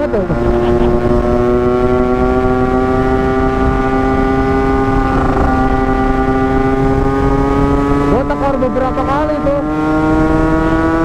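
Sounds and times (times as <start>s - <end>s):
low wind rumble: 0.0s - 11.0s
two-stroke motorcycle engine: 0.0s - 11.0s.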